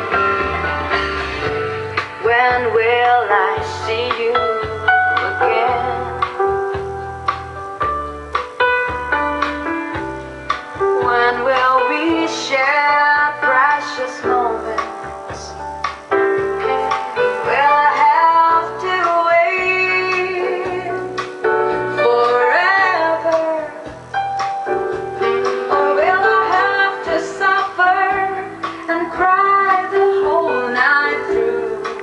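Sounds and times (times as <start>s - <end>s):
woman singing pop song with band: 2.0s - 6.4s, 11.0s - 15.6s, 17.4s - 24.0s, 25.5s - 32.0s.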